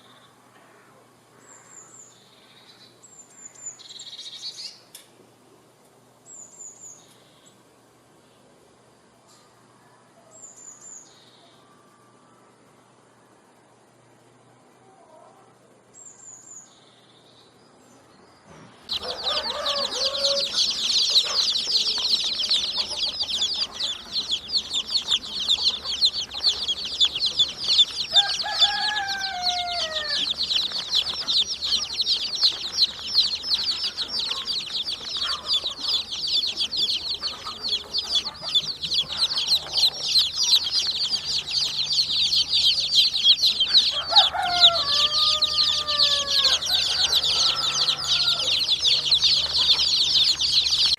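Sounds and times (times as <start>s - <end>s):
small birds chirping: 15.9s - 50.9s.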